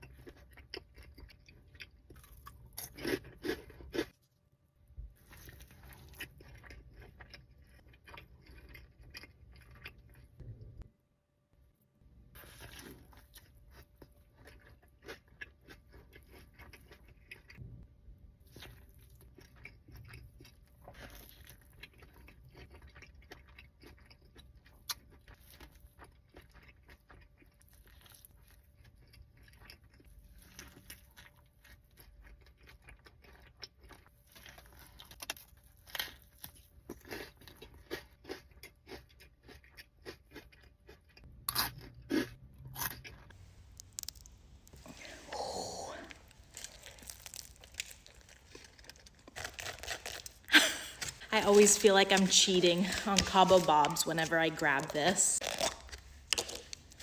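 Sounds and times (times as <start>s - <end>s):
crunchy chewing and biting: 0.0s - 4.2s, 5.2s - 10.4s, 12.4s - 17.7s, 18.4s - 51.6s, 55.4s - 57.0s
wet mouth sounds: 43.3s - 51.3s.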